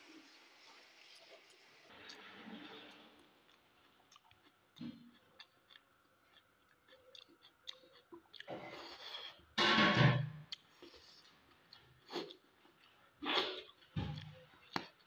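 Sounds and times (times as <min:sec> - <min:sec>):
faint chewing: 0:02.0 - 0:09.5, 0:10.5 - 0:15.0.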